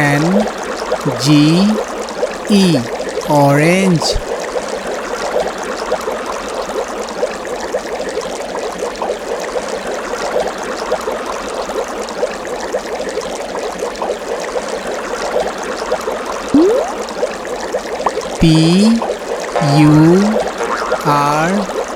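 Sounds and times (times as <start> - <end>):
bubbling running water: 16.6 - 17.1.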